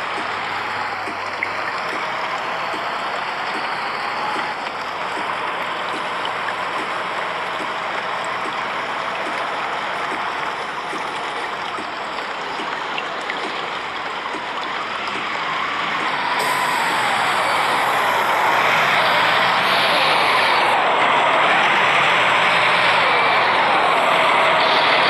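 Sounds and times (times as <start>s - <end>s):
heavy rain hissing: 13.0s - 25.0s.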